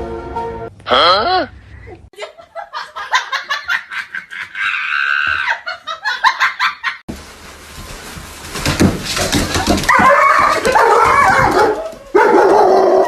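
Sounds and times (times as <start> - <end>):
person laughing hard: 1.8 - 7.0.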